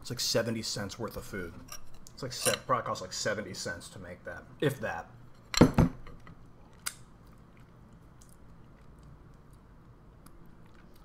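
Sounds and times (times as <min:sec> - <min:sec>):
quiet chewing: 0:06.6 - 0:11.0.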